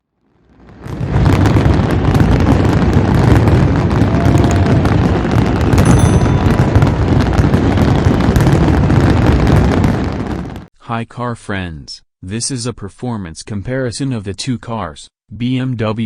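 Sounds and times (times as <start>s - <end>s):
fireworks crackling and booming: 0.2s - 10.7s.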